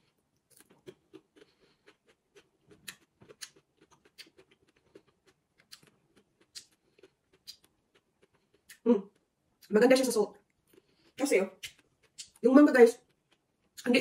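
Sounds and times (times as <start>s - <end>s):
person chewing crunchy fruit: 0.0s - 9.7s, 10.4s - 14.0s.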